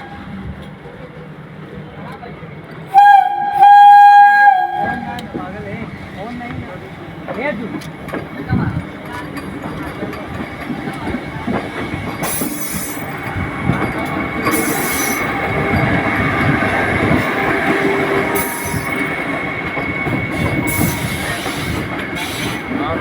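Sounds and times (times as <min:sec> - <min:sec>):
train rumbling on rails: 0:00.0 - 0:23.0
high wheel squeal: 0:14.4 - 0:22.7.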